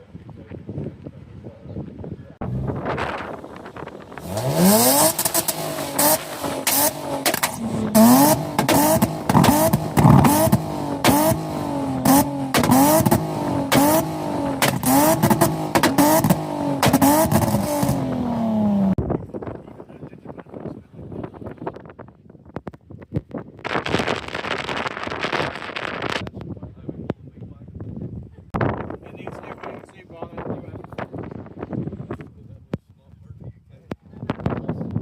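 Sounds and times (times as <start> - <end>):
car engine revving: 2.4 - 19.0
exhaust cracks and pops: 2.5 - 18.2, 21.5 - 27.2.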